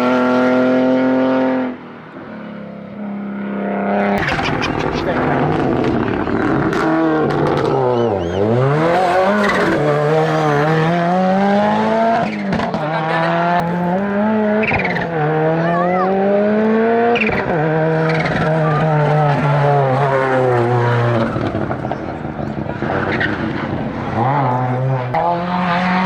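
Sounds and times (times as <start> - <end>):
racing car engine revving: 0.0 - 26.0
tyre squeals: 7.6 - 10.9.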